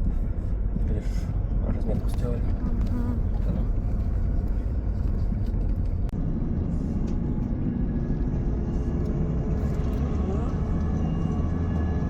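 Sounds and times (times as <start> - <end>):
heavy engines rumbling: 0.0 - 12.0
faint rising engine tone: 6.2 - 12.0.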